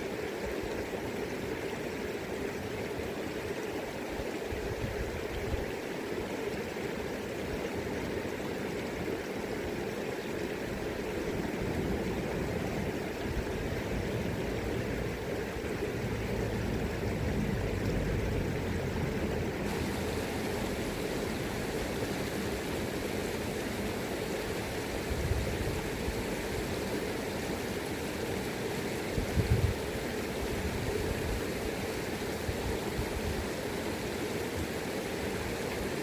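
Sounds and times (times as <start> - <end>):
river current rushing: 0.0 - 36.0
wind rumbling on microphone: 4.5 - 5.7, 10.6 - 35.9.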